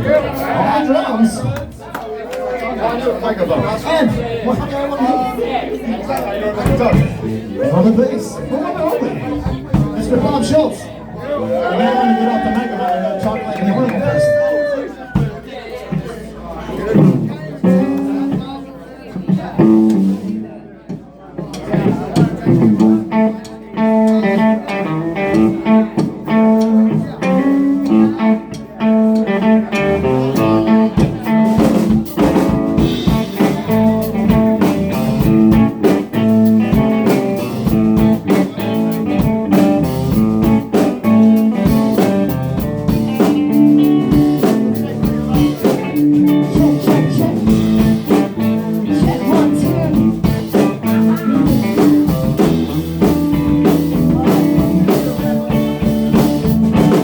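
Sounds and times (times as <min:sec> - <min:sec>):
drums: 0:00.0 - 0:01.8, 0:03.4 - 0:57.0
bass guitar: 0:06.3 - 0:15.4, 0:16.8 - 0:20.6, 0:21.5 - 0:57.0
electric guitars: 0:17.0 - 0:18.4, 0:19.6 - 0:20.4, 0:21.8 - 0:57.0.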